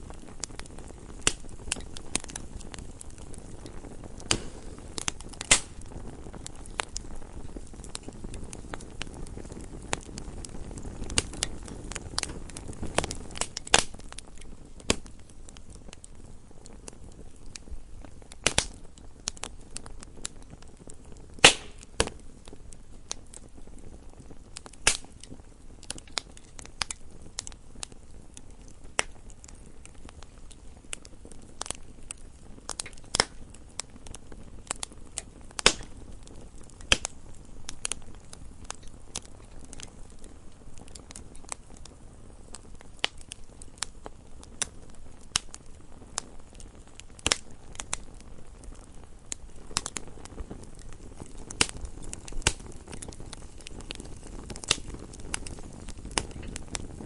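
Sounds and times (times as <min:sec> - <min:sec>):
faint low hiss: 0:00.0 - 0:57.0
fire pops: 0:00.0 - 0:57.0
wood fire crackling: 0:00.0 - 0:57.0.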